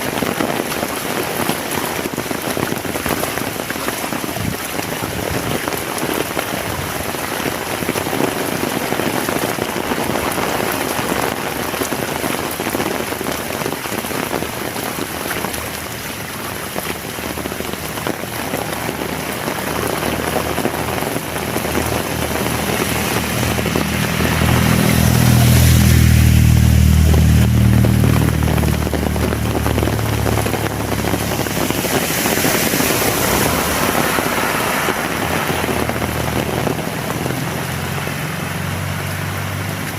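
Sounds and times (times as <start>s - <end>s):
heavy rain falling: 0.0s - 39.9s
vehicle engine passing: 15.5s - 39.9s.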